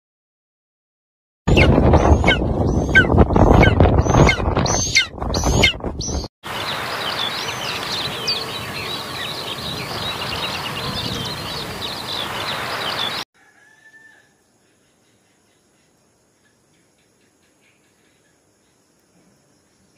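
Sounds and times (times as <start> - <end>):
birds chirping: 1.5 - 13.3
steady hiss: 6.5 - 13.2.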